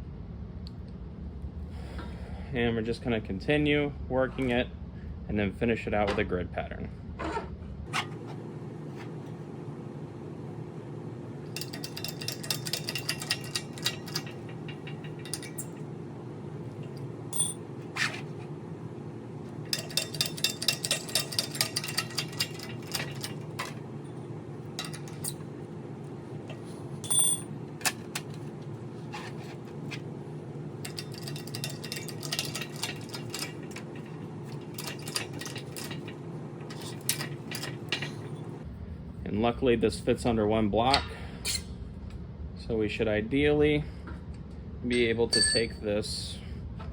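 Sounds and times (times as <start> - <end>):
steady low hum: 0.0 - 46.9
metal panel clicking and clinking: 11.5 - 15.8, 19.7 - 23.8, 24.7 - 25.4, 30.8 - 38.5.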